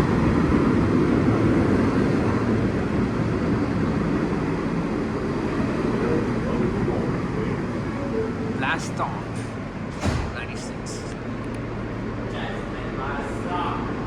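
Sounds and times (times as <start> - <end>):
subway car running noise: 0.0 - 14.0.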